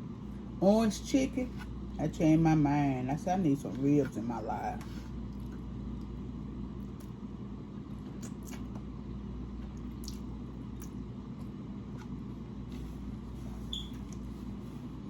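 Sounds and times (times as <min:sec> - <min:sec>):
steady low hum: 0:00.0 - 0:15.0
person chewing ribs: 0:05.0 - 0:13.0.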